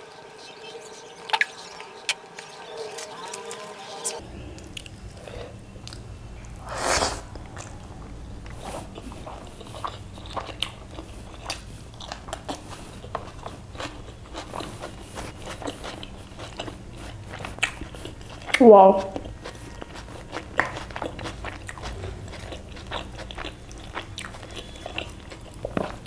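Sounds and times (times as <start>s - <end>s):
steady low hum: 0.0s - 26.0s
chewing with wet clicks: 0.1s - 6.6s, 8.4s - 26.0s.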